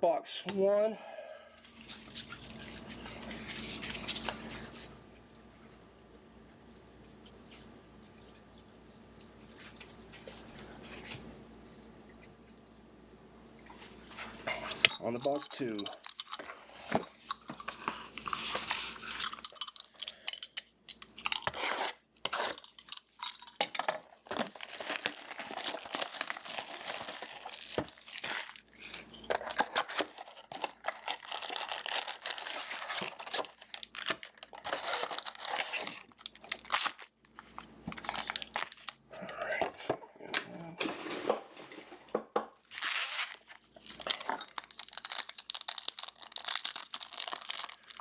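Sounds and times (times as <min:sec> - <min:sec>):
plastic wrappers ripping and rustling: 0:01.6 - 0:04.8, 0:14.5 - 0:16.4, 0:21.0 - 0:39.0, 0:42.6 - 0:48.0.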